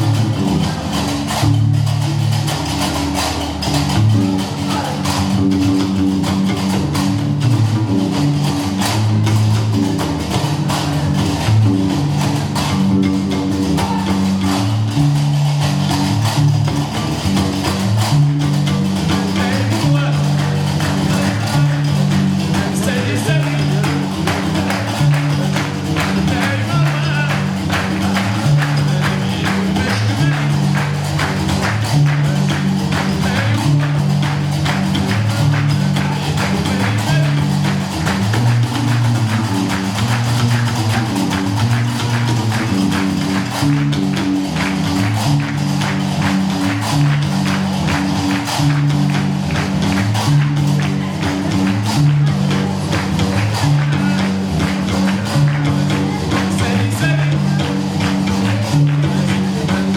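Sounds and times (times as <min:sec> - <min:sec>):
bass lute riff: 0:00.0 - 0:59.9
person singing: 0:19.0 - 0:34.5, 0:55.3 - 0:59.9.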